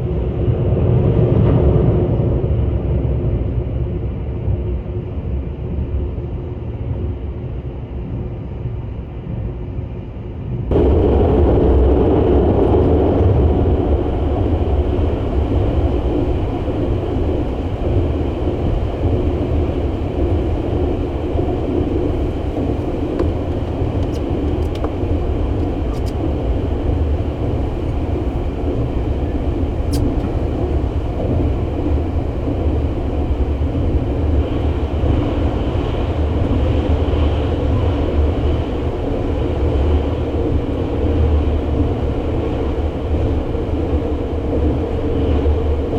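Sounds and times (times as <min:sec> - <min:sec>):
train wheels rumbling: 0:10.7 - 0:45.9.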